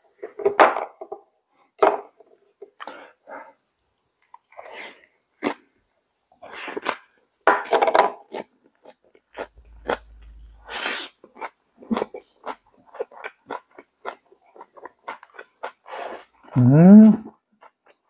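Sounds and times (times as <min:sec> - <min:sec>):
crunchy chewing: 0:04.2 - 0:05.8, 0:08.2 - 0:16.6
wet mouth sounds: 0:09.4 - 0:14.2.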